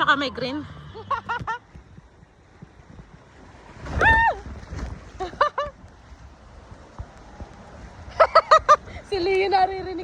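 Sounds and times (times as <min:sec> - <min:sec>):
wind rumbling on microphone: 0:01.0 - 0:10.0.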